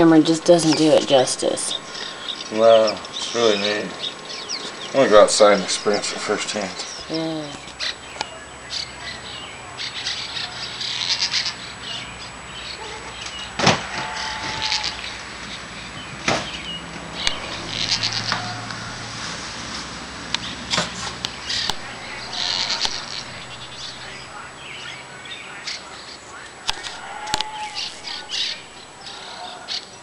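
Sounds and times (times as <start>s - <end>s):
small birds chirping: 0.0s - 30.0s
wing flutters: 17.2s - 24.4s.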